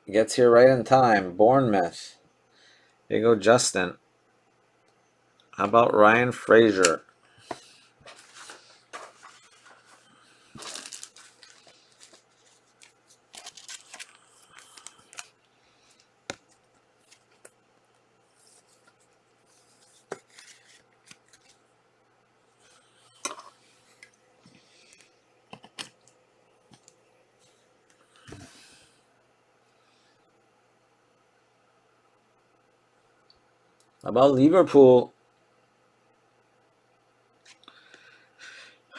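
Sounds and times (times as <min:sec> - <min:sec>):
trading cards rustling: 0:06.7 - 0:17.6, 0:18.4 - 0:21.6.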